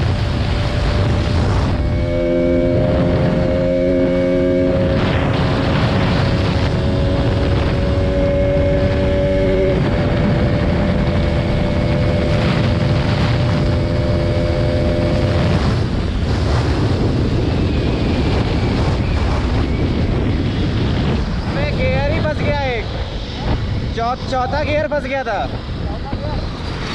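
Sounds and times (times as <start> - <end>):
motorcycle engine running: 0.0 - 18.8
wind buffeting on microphone: 0.0 - 26.9.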